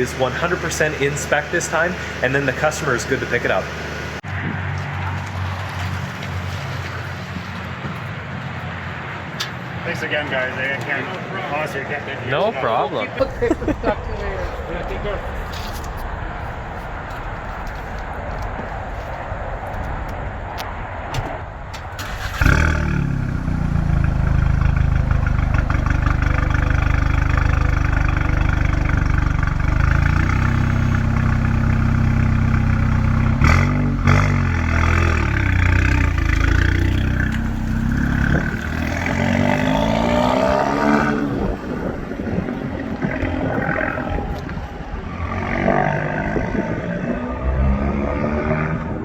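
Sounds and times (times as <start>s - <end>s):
turbocharged car engine revving: 0.0s - 4.2s, 22.0s - 49.0s.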